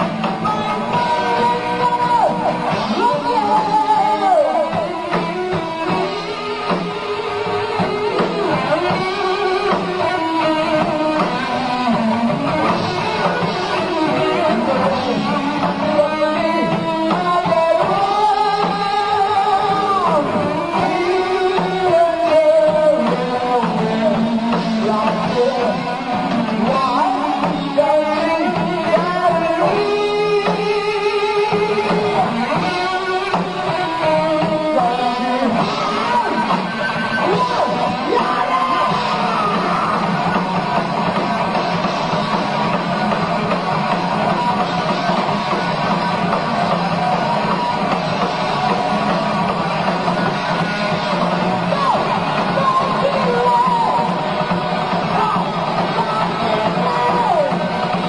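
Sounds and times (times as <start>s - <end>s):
bass: 0.0s - 58.0s
drums: 0.0s - 58.0s
electric guitar melody: 0.0s - 58.0s.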